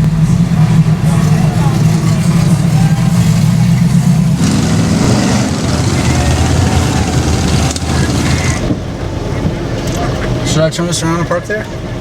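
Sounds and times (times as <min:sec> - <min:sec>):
rushing noise: 0:00.0 - 0:09.4
truck engine running: 0:00.0 - 0:10.5.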